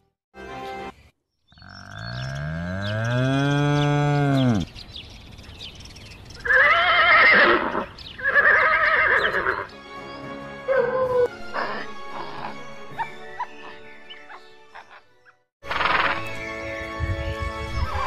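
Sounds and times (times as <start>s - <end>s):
background music: 0.0s - 1.1s, 9.0s - 18.0s
cow mooing: 1.6s - 4.7s
horse whinnying: 6.4s - 9.7s.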